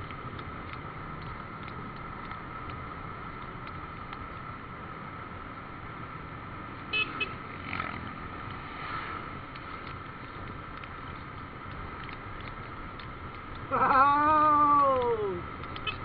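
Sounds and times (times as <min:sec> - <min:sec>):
road noise: 0:00.0 - 0:16.0
vehicle horn toots: 0:06.9 - 0:07.4.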